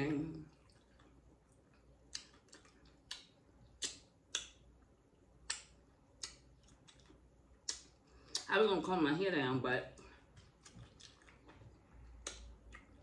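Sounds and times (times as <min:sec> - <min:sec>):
chewing crunchy chips: 0:00.5 - 0:04.5, 0:10.4 - 0:13.0.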